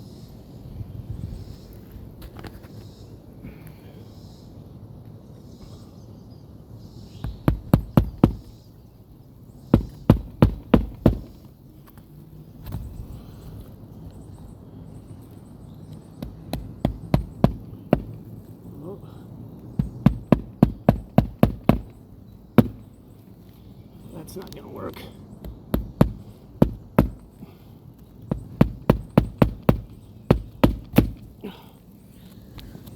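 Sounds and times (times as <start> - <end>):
hammer driving nails into shingles: 7.2 - 8.6, 9.7 - 11.5, 16.2 - 18.3, 19.8 - 22.0, 22.6 - 23.0, 25.4 - 27.6, 28.2 - 31.4.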